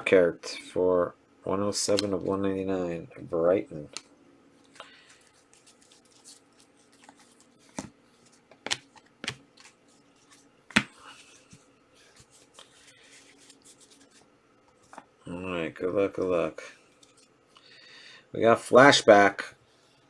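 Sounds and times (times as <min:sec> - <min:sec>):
light rustling of card packs: 0:01.8 - 0:17.8
cards clicking and tapping: 0:04.7 - 0:11.6.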